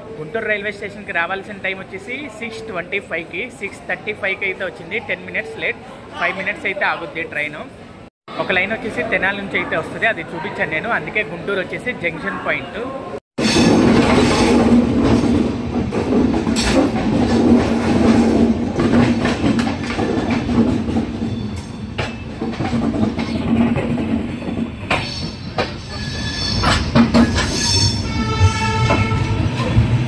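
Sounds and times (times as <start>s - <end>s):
train coaches rumbling: 13.4s - 30.0s
wheel squeal: 24.4s - 29.0s.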